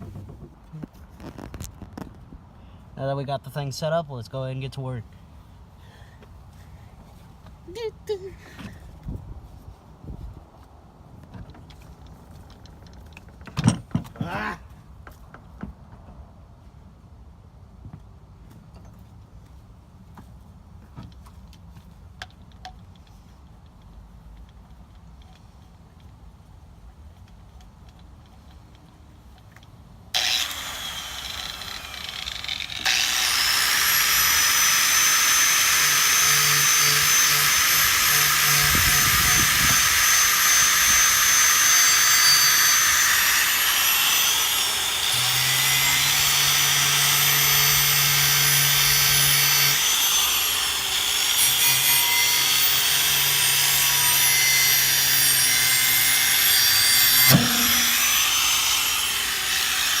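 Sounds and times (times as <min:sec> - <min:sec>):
grinder motor hum: 0:30.2 - 0:54.7, 0:55.4 - 1:00.0
wire wheel scrubbing metal: 0:55.7 - 1:00.0.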